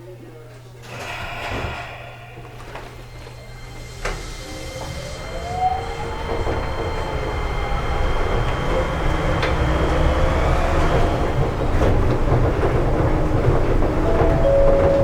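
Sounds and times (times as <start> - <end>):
train car rumbling: 0.8 - 15.0
faint rising tone: 14.0 - 15.0.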